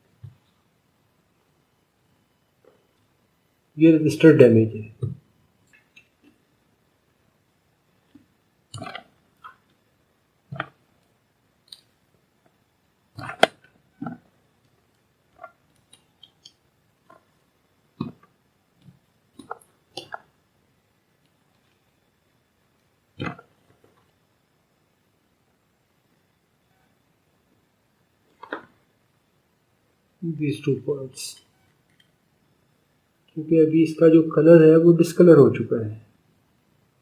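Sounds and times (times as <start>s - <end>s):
small clicks and taps of tools: 31.8s - 32.2s.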